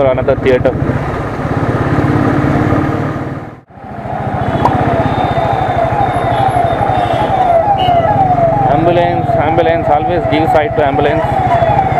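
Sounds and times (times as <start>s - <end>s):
ambulance siren: 3.8s - 11.9s.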